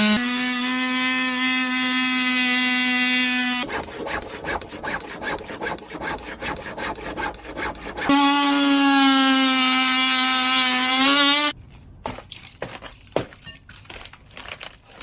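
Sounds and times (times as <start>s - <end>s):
power saw motor whining: 0.0s - 11.5s
saw rasping through wood: 0.0s - 11.5s.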